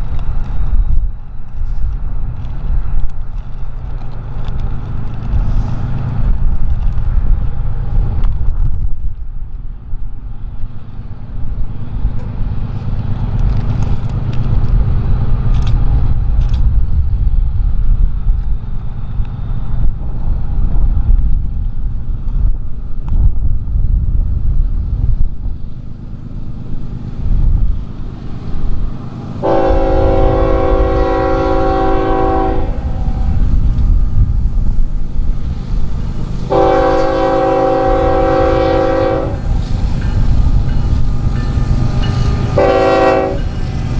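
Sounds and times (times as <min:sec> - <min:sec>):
freight train rumbling past: 0:00.0 - 0:43.9
locomotive air horn blasts: 0:29.4 - 0:33.6, 0:36.5 - 0:39.8, 0:42.0 - 0:43.9.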